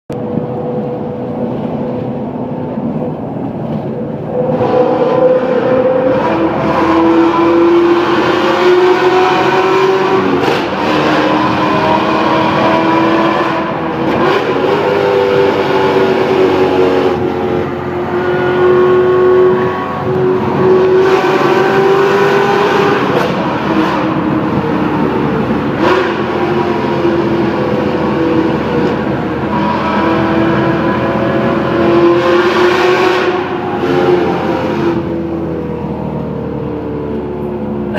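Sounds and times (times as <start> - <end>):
sports car engine revving: 4.3 - 37.9.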